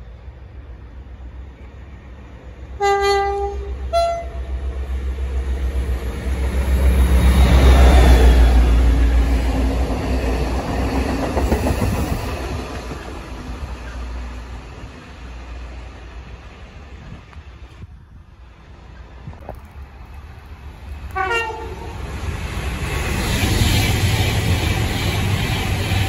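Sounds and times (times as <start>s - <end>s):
locomotive running past: 0.2s - 26.0s
train horn: 2.8s - 4.5s, 21.1s - 22.0s.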